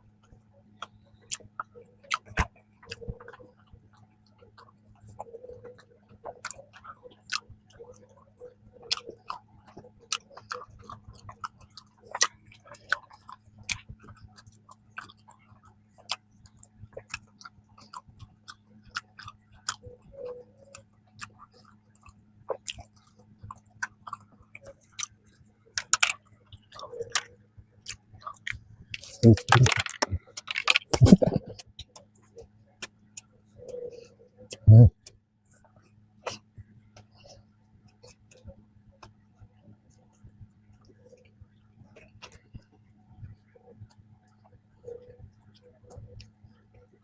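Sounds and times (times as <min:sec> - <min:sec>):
faint low hum: 0:00.0 - 0:47.0
mouth clicks and smacks: 0:00.8 - 0:08.2, 0:08.8 - 0:32.1, 0:34.5 - 0:35.2
person chewing: 0:00.8 - 0:35.0.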